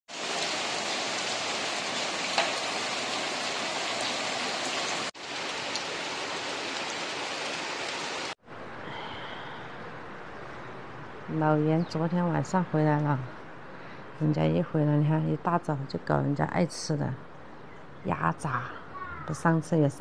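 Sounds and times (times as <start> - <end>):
heavy rain falling: 0.1 - 8.4.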